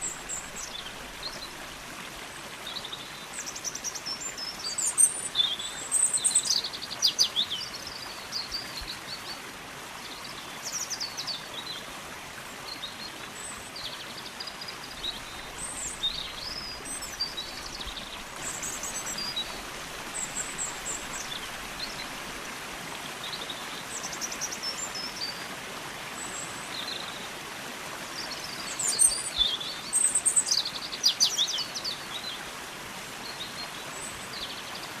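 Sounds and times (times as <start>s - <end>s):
songbirds chirping: 0.0s - 35.0s
stream water flowing: 0.0s - 35.0s.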